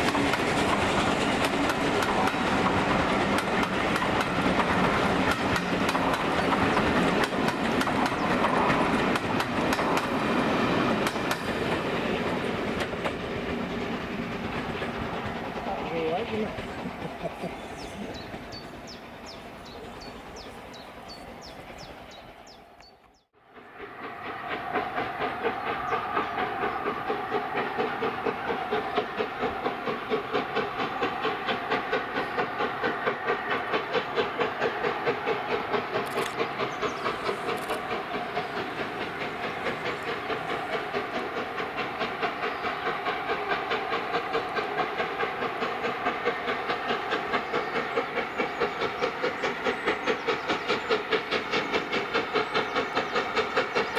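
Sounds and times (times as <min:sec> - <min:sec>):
steam locomotive exhaust beats: 0:00.0 - 0:53.9
steam hiss: 0:23.5 - 0:53.9.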